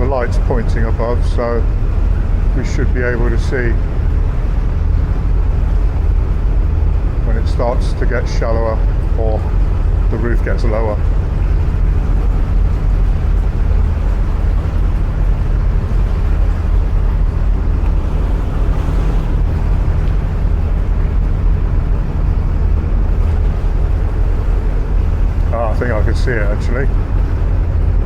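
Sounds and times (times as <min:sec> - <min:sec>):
boat diesel engine droning: 0:00.0 - 0:28.0.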